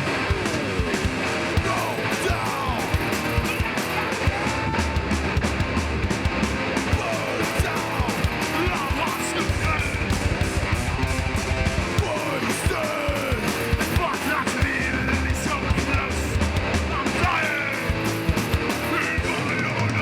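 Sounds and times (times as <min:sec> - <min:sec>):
bass guitar: 0:00.0 - 0:20.0
distorted electric guitars: 0:00.0 - 0:20.0
driving drums: 0:00.0 - 0:20.0.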